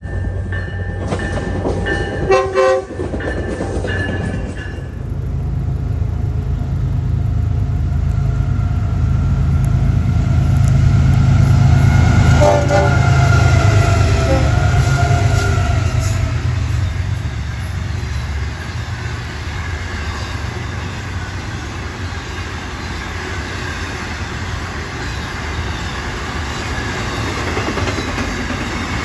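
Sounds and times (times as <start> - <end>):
locomotive engine rumble: 0.0 - 23.2
train horn chord: 2.2 - 3.0, 10.4 - 16.9.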